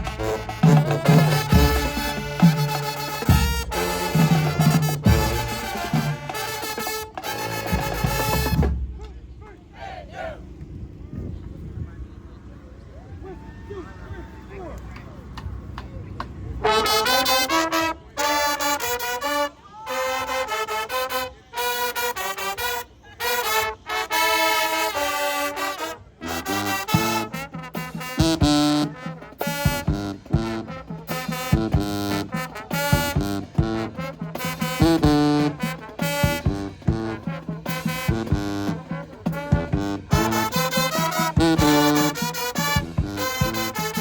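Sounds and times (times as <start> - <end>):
drums: 0.0 - 9.5, 24.5 - 44.0
marching band brass playing: 0.0 - 10.5, 16.5 - 44.0.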